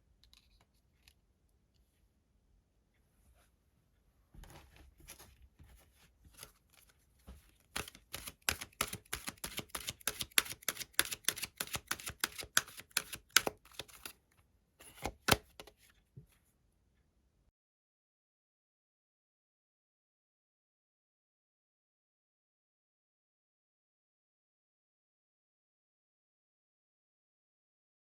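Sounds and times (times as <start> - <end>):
cards being shuffled: 6.3 - 14.2, 14.8 - 15.8
card taps: 7.8 - 14.1, 14.9 - 15.7.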